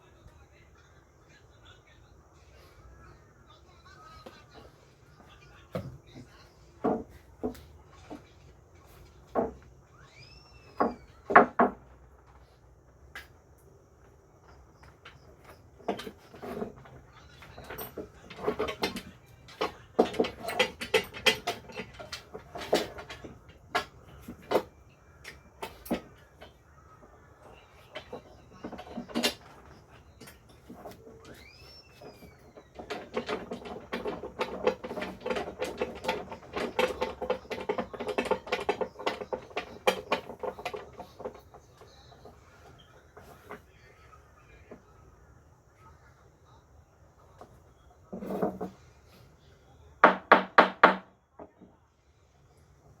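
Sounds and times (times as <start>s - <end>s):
wooden boards knocking: 10.8s - 11.9s, 32.0s - 41.5s, 50.0s - 51.6s.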